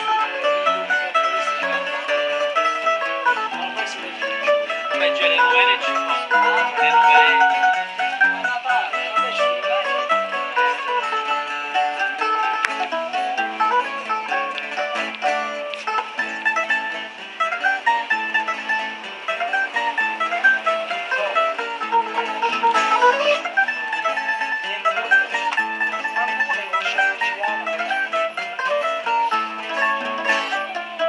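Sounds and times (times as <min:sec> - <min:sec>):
plucked string instruments playing: 0:00.0 - 0:31.0.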